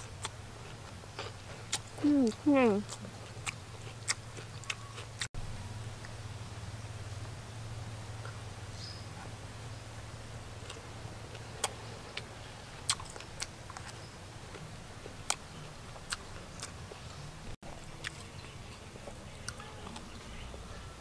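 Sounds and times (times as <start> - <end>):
person chewing: 0.0 - 5.3, 10.6 - 20.5
low hum: 0.0 - 21.0.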